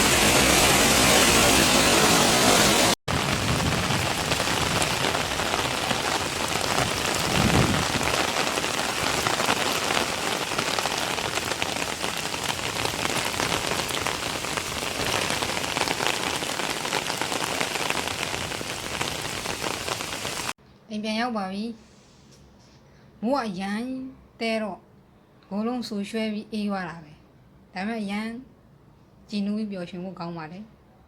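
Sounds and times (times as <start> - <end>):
heavy rain falling: 0.0 - 20.6.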